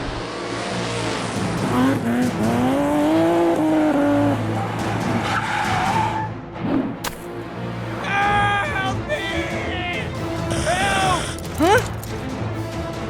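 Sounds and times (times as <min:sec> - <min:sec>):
background music: 0:00.0 - 0:13.0
toy car engine whine: 0:10.5 - 0:11.6.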